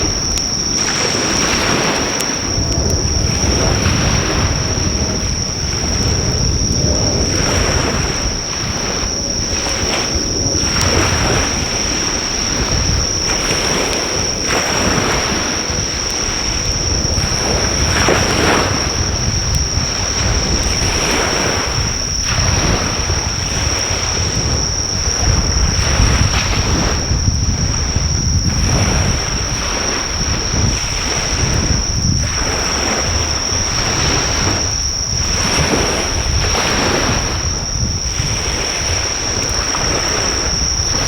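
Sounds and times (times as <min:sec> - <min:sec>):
faint fire crackles: 0:00.0 - 0:07.4
high-pitched insect trill: 0:00.0 - 0:41.0
waves washing onto beach: 0:00.0 - 0:41.0.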